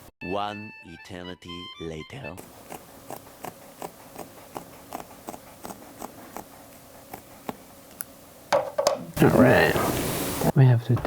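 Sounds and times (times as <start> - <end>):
wooden hand loom knocking: 8.5 - 9.1.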